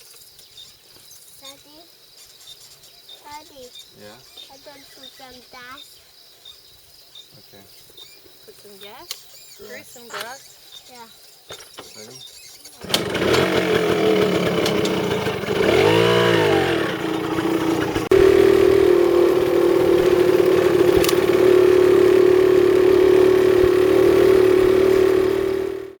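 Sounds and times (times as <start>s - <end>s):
small motorbike engine revving: 12.6s - 26.0s.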